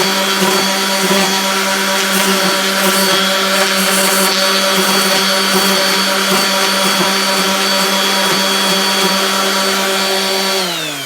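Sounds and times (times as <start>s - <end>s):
sandpaper grinding wood: 0.0s - 10.4s
electric sander whining: 0.0s - 11.0s.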